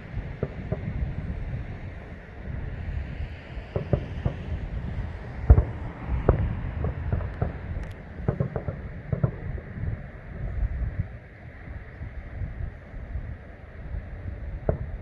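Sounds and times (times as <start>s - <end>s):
distant fireworks booming: 0.0s - 11.2s, 14.3s - 15.0s
wind noise on microphone: 0.0s - 15.0s.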